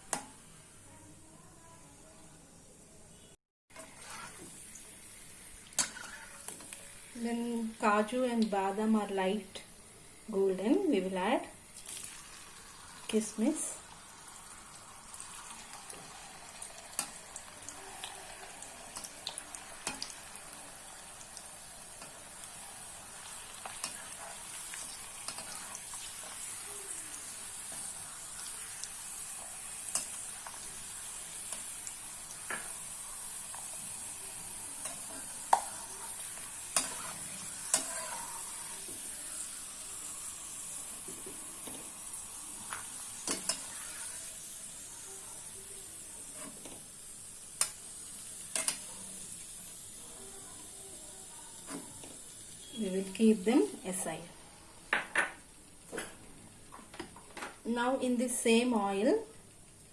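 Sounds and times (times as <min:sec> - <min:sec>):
nuts frying in hot oil: 0:00.0 - 0:00.8, 0:03.7 - 0:59.9.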